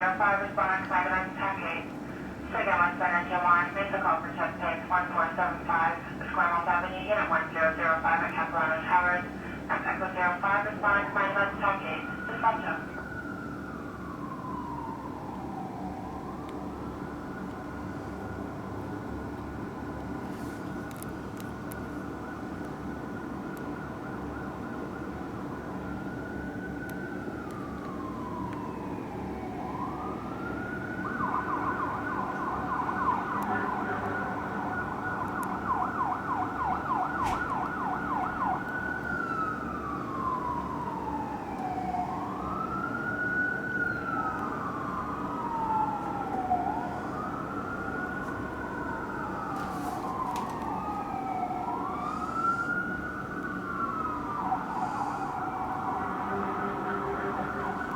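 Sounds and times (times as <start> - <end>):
low hum of truck engines: 0.0 - 57.9
second siren wailing: 0.0 - 57.9
electronic siren wail and yelp: 26.9 - 57.9.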